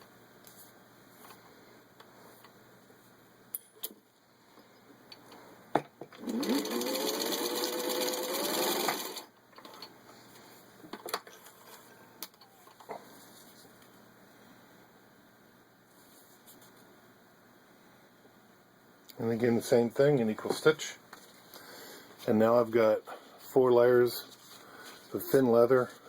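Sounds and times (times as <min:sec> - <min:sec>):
sewing machine stitching: 0:06.2 - 0:09.3.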